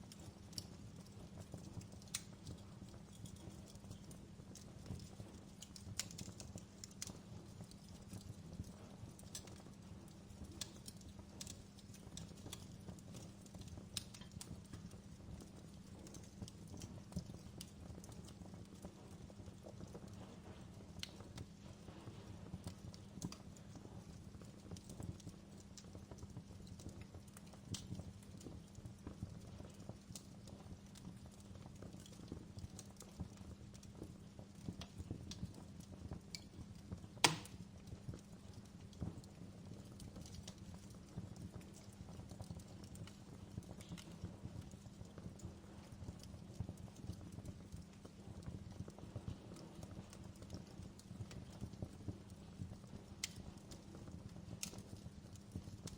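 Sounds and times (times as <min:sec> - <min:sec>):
low rumble of flames: 0:00.0 - 0:55.9
wood fire crackling and popping: 0:00.0 - 0:55.9.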